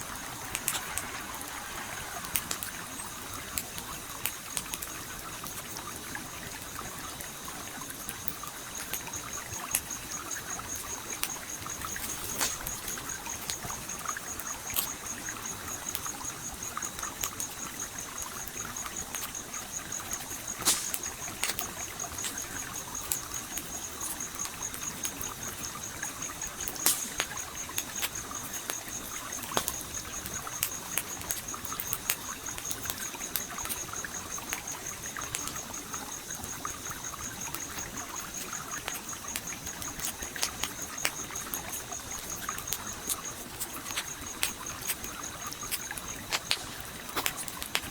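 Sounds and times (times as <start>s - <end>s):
stream flowing: 0.0s - 7.7s
campfire crackling: 0.0s - 47.9s.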